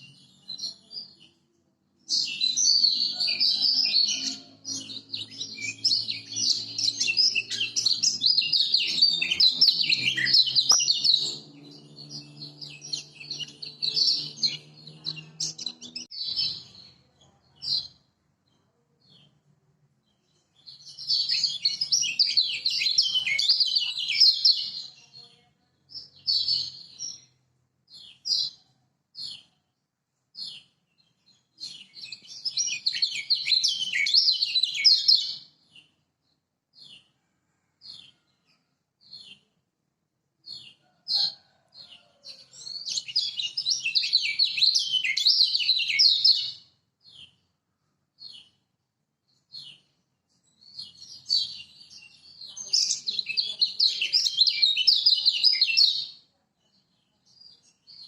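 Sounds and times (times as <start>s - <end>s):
high bird chirps: 0.0s - 18.0s, 20.6s - 25.0s, 42.6s - 47.3s
bird warbling song: 2.1s - 18.0s, 20.6s - 25.0s, 31.3s - 35.9s, 42.4s - 47.3s, 50.7s - 56.1s.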